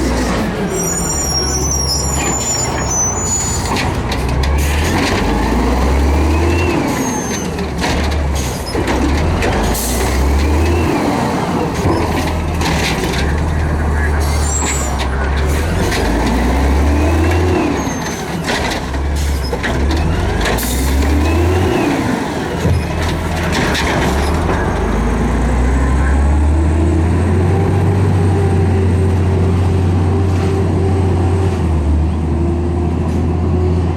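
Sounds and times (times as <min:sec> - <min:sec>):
garbage truck diesel engine revving: 0:00.0 - 0:33.9.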